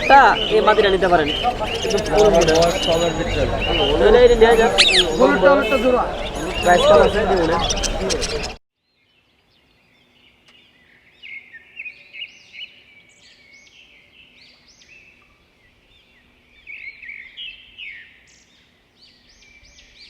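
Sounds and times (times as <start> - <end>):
caged birds chirping: 0.0 - 8.6.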